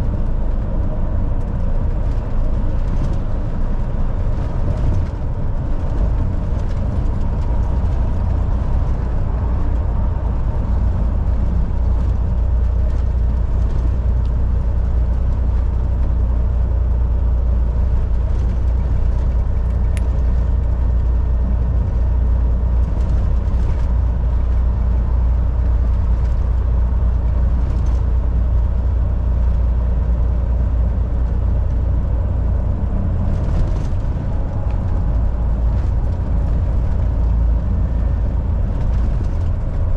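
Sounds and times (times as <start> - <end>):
road noise: 0.0 - 39.9
truck engine drone: 0.0 - 39.9.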